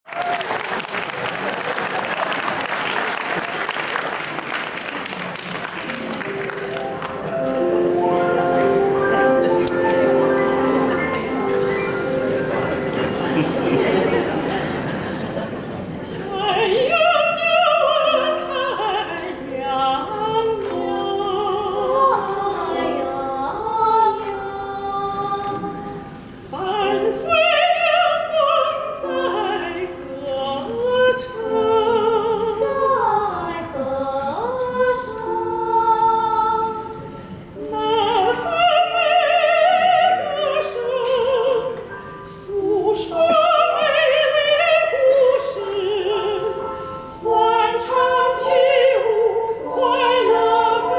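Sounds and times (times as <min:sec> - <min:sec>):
piano accompaniment: 0:05.2 - 0:50.9
soprano singing operatically: 0:16.1 - 0:50.9.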